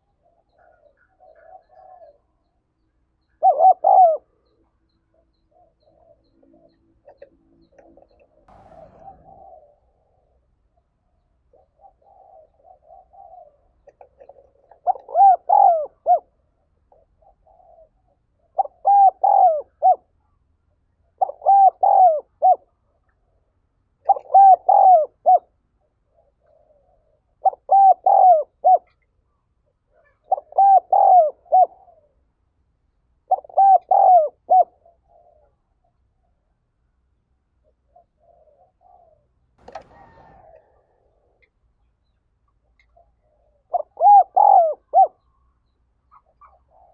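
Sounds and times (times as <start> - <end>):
dove cooing: 0.0 - 2.3, 3.3 - 4.3, 11.5 - 20.2, 21.2 - 23.0, 24.1 - 29.0, 29.9 - 32.2, 33.3 - 35.6, 37.9 - 41.5, 42.9 - 45.4, 46.1 - 46.9.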